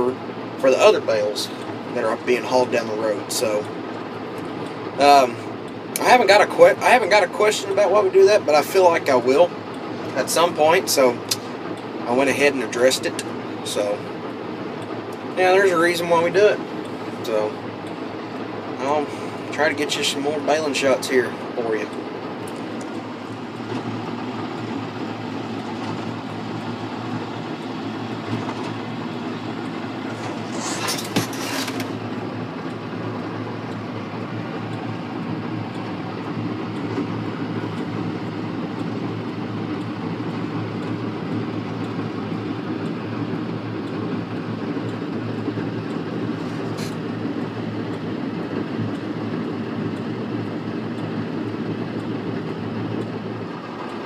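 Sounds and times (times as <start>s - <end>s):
tractor diesel engine running: 0.0s - 54.0s
sharp click: 11.2s - 11.9s
rattling clatter: 30.1s - 32.0s.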